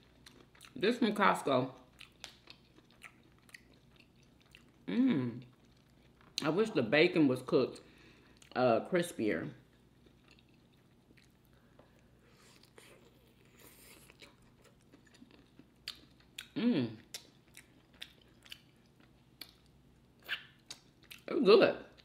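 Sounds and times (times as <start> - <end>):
wet chewing mouth clicks: 14.0 - 18.8
person humming murmur: 16.6 - 17.0.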